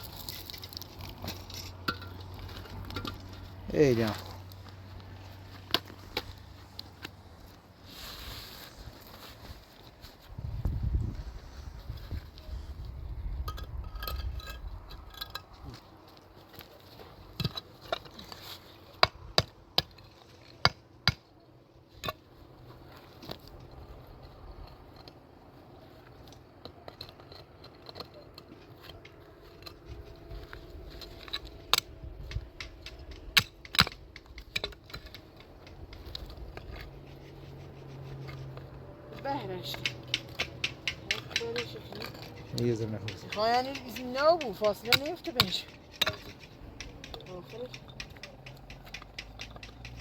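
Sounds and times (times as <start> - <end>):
stones tapped into mortar: 31.7 - 36.5, 39.6 - 50.0.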